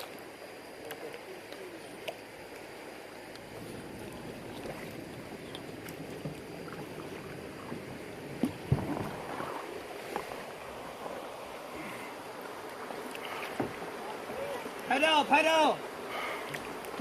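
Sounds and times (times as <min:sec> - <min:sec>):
paddle splashes: 0:03.5 - 0:17.0
river water rushing: 0:08.6 - 0:17.0.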